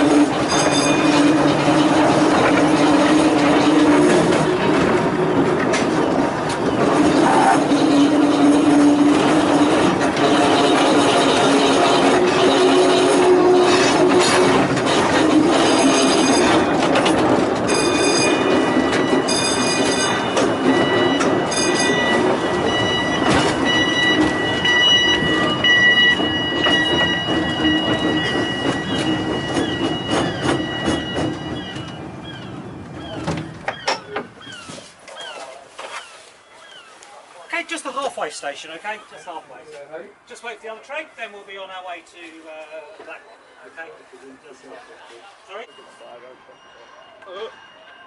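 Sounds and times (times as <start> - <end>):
railway car running on track: 0.0 - 35.0, 37.0 - 48.0
wheels squealing: 0.0 - 37.0.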